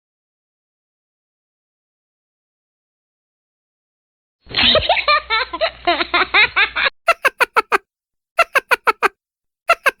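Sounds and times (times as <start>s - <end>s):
muffled giggling laugh: 4.5s - 7.8s, 8.4s - 9.1s, 9.7s - 10.0s
quick ha-ha laugh: 6.2s - 7.8s, 8.4s - 9.1s, 9.7s - 10.0s.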